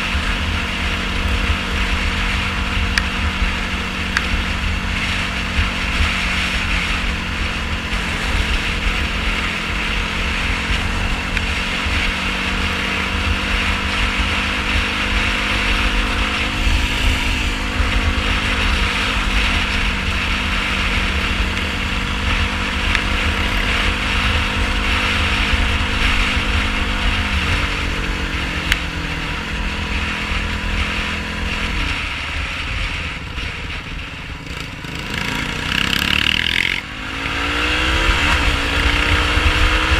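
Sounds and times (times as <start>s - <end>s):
quad bike engine shifting gears: 34.4s - 39.9s.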